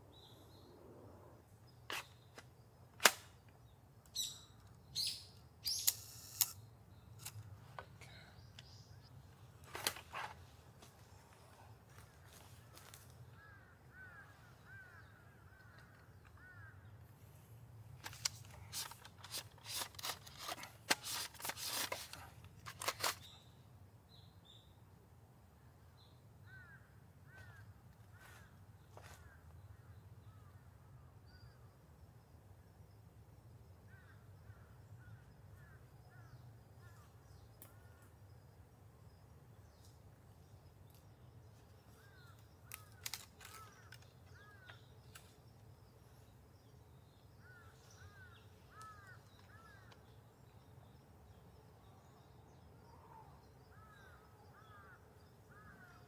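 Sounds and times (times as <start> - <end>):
loud sharp clicks and rustles: 1.9 - 3.4, 18.0 - 23.3, 42.7 - 45.4.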